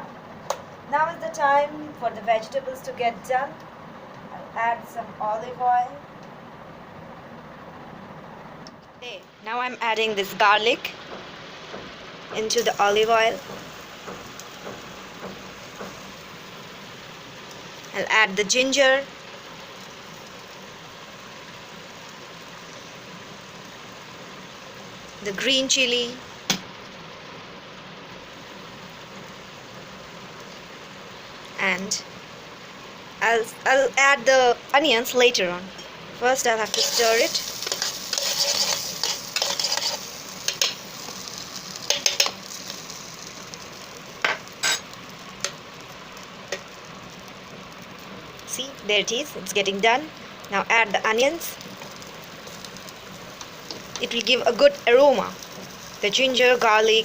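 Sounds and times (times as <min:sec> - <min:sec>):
garlic sizzling in oil: 0:09.2 - 0:57.0
utensil scraping pot: 0:36.6 - 0:41.2, 0:44.2 - 0:45.0.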